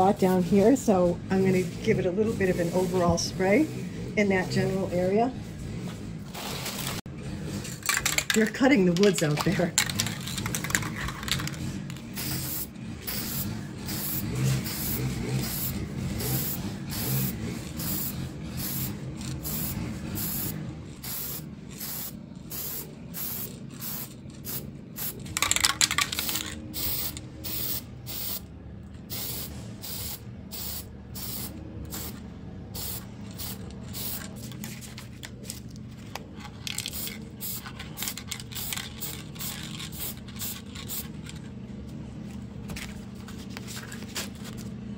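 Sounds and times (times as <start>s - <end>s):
aerosol spray can hissing: 12.2s - 25.2s.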